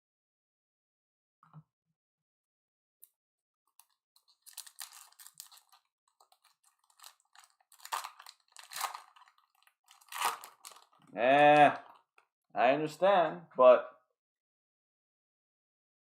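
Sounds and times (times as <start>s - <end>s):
foil wrapper crinkling: 3.8s - 12.1s.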